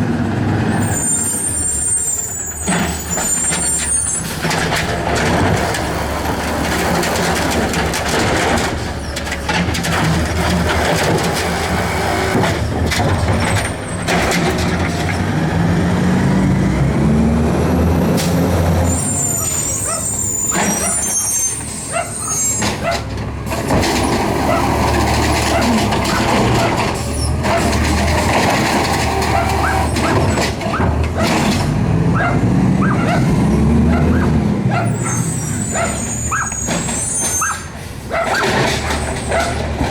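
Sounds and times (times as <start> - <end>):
garbage truck diesel engine revving: 0.0 - 39.9
high squealing: 0.8 - 4.4, 18.2 - 23.1, 23.9 - 39.6.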